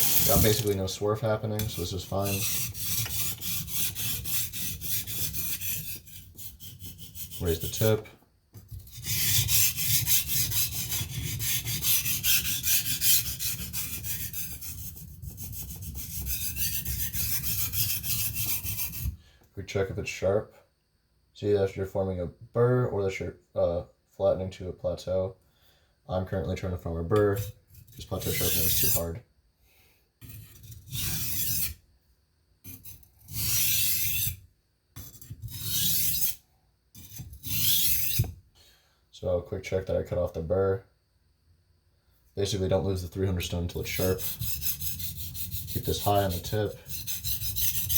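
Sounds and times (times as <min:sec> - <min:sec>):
knife scraping on whetstone: 0:00.0 - 0:00.9, 0:01.6 - 0:08.0, 0:08.7 - 0:19.1, 0:27.3 - 0:29.1, 0:30.2 - 0:31.8, 0:32.6 - 0:34.4, 0:35.0 - 0:36.4, 0:37.0 - 0:38.4, 0:43.8 - 0:47.9.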